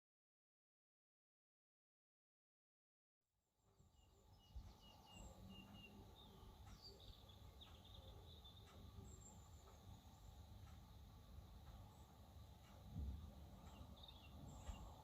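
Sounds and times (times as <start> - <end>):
small birds chirping: 3.6 - 15.0
low outdoor rumble: 3.8 - 15.0.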